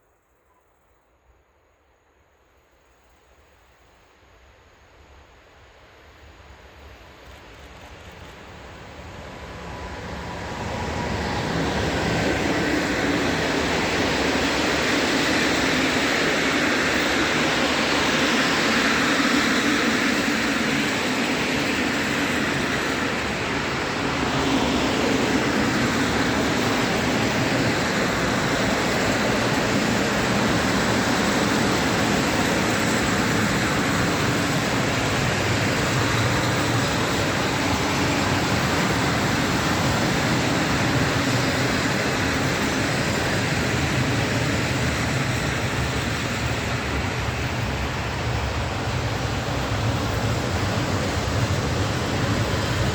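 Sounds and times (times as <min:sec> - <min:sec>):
train passing with rail noise: 0:00.0 - 0:52.9.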